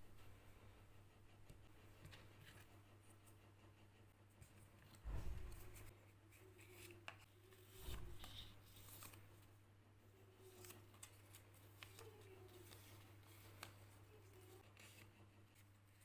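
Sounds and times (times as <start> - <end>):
soft thump: 5.0 - 5.8.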